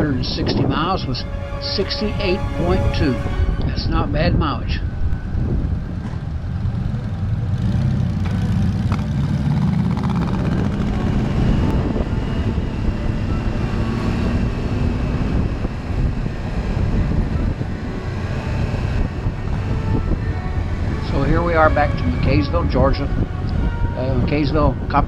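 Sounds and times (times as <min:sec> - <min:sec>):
wind on microphone: 0:10.1 - 0:25.0.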